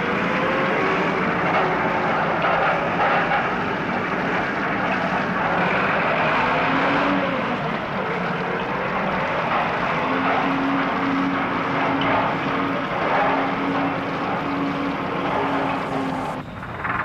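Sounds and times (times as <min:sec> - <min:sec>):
engine drone: 0:00.0 - 0:17.0
loud dense rushing noise: 0:00.0 - 0:17.0.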